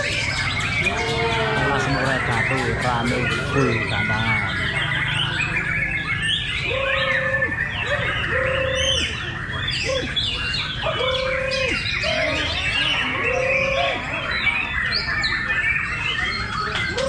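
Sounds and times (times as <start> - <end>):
songbirds singing and chirping: 0.0 - 17.0.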